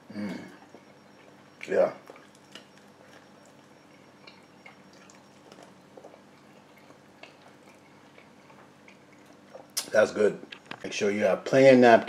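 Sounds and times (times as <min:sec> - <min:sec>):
faint steady hum: 0:00.0 - 0:12.0
person chewing: 0:02.0 - 0:09.9.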